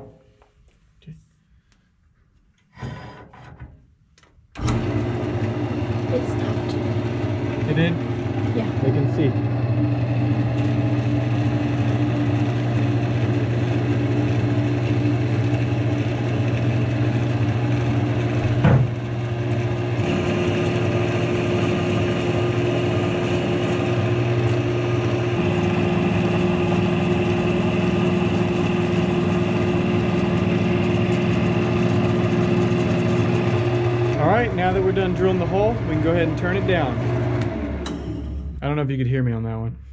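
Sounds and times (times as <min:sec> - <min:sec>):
drill bit boring wood: 0:04.6 - 0:38.6
wood lathe running: 0:04.6 - 0:38.6
knock: 0:18.6 - 0:18.9.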